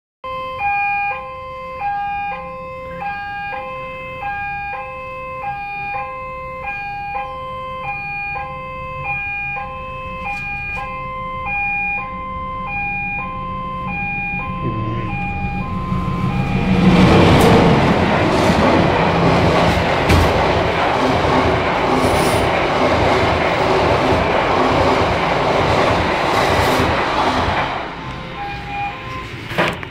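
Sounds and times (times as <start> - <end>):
two-tone electronic warning signal: 0.2 - 20.0, 27.4 - 29.8
train passing: 1.8 - 29.9
low rumble: 11.0 - 29.6.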